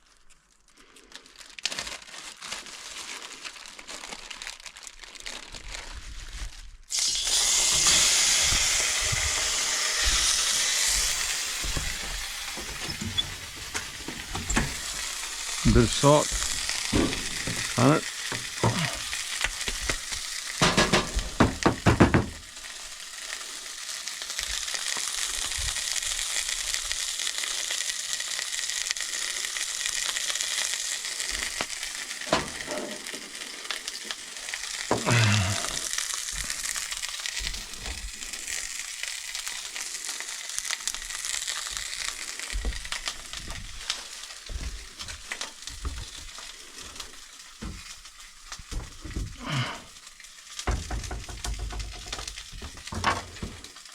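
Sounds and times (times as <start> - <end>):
steak sizzling in a frying pan: 6.9 - 53.9
sharp knocks: 16.9 - 18.9, 20.6 - 22.4, 50.7 - 53.6.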